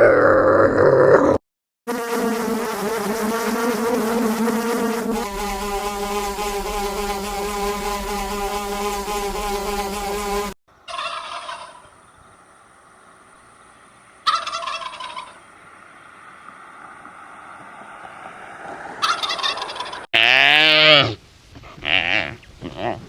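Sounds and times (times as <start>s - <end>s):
insect buzzing: 1.9s - 10.6s.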